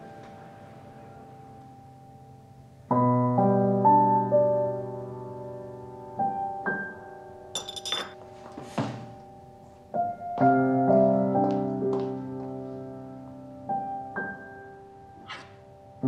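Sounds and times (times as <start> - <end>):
slow soft piano music: 0.0 - 16.0
high clink: 7.6 - 8.2.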